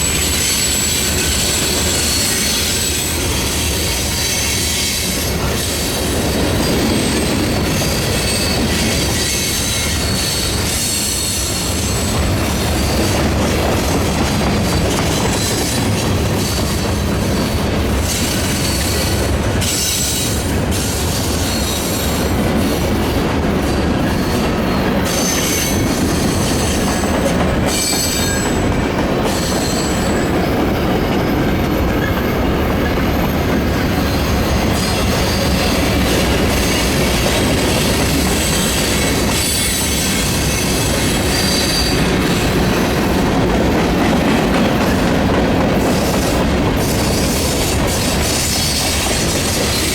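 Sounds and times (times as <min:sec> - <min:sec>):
train wheels rumbling on rails: 0:00.0 - 0:49.9
high-pitched wheel squeal: 0:37.6 - 0:42.2.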